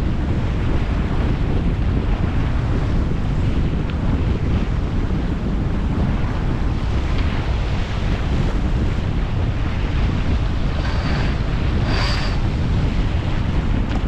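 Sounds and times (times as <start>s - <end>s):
water rushing along hull: 0.0s - 14.0s
wind buffeting microphone: 0.0s - 14.0s.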